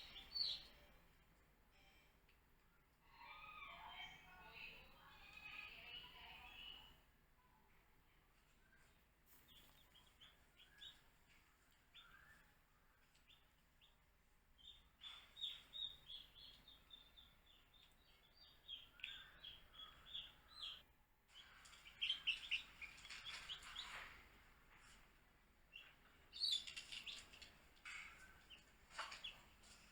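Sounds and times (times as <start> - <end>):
baby chicks peeping: 0.0 - 0.8, 8.8 - 14.0, 14.6 - 24.4, 25.7 - 29.9.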